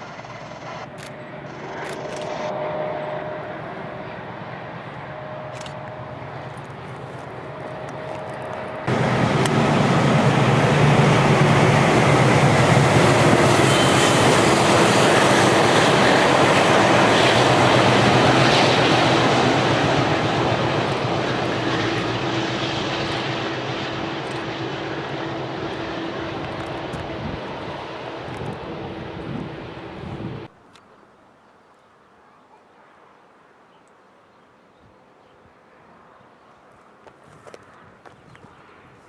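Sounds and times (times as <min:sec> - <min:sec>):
locomotive drone: 0:00.0 - 0:30.5.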